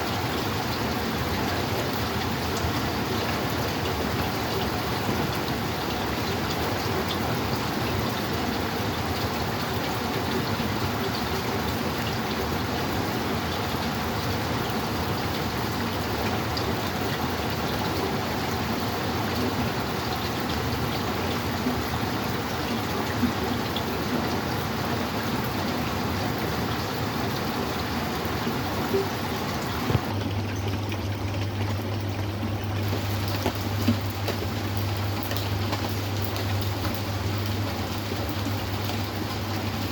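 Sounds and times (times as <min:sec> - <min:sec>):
steady rain falling: 0:00.0 - 0:30.2, 0:31.7 - 0:39.9
rain drop ticks: 0:28.9 - 0:39.9.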